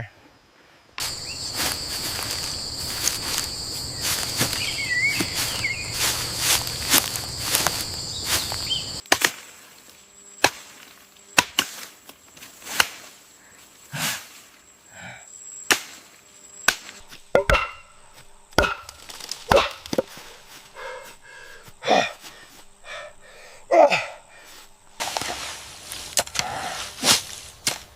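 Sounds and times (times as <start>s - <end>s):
chopping strikes on wood: 9.0s - 9.5s, 11.4s - 11.8s, 16.7s - 20.3s.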